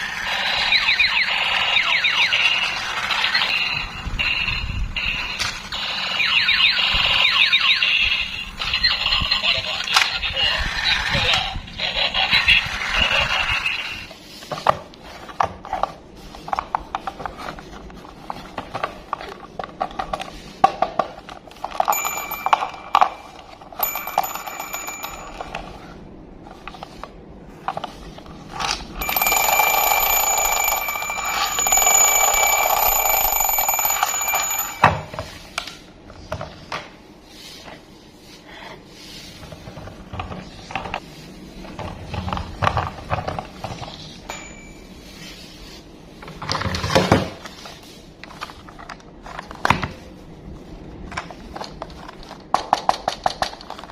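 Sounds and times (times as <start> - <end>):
high-pitched electronic ringing tone: 0.5 - 9.4, 29.0 - 35.4, 44.3 - 45.3.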